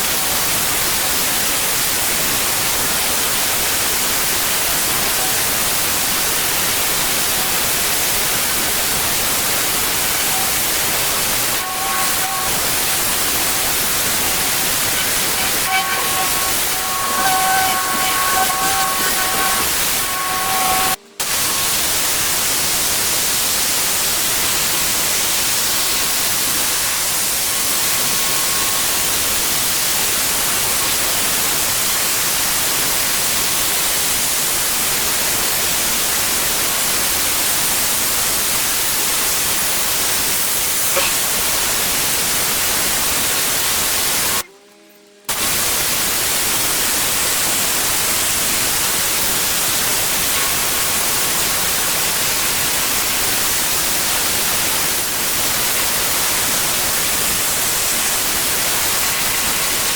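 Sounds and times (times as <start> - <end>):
pressure washer spraying water: 3.1 - 28.9.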